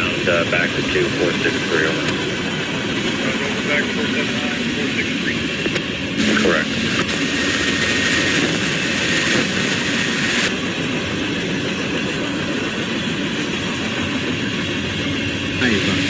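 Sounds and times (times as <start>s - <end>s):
freight train rolling past: 0.0s - 16.0s
steel wheels rumbling on rails: 0.0s - 16.0s.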